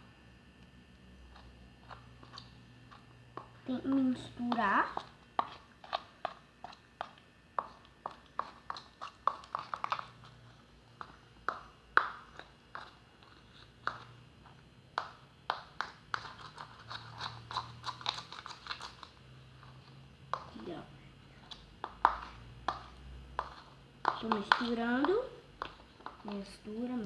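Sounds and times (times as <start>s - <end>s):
slime stirred wet clicks: 21.5s - 26.4s.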